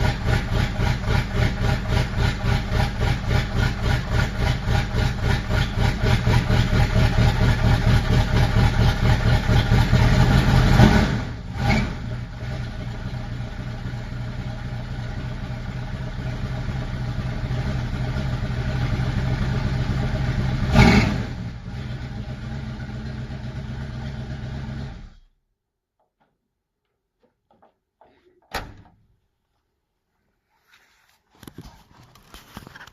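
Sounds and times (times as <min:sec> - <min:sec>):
engine running and revving: 0:00.0 - 0:13.2, 0:16.2 - 0:25.1.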